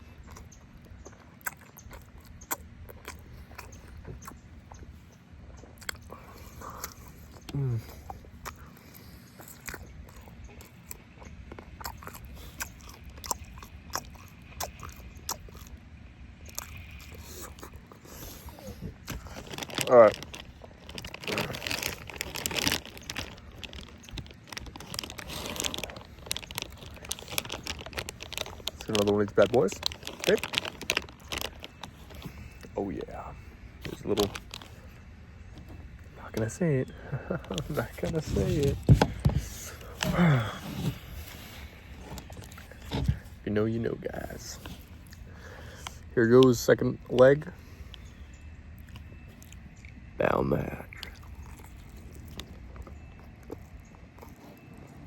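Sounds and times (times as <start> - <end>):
crinkling noises: 0.0 - 15.8, 16.4 - 55.0
chewing with mouth smacks: 0.0 - 32.8, 47.7 - 50.1, 50.9 - 55.0.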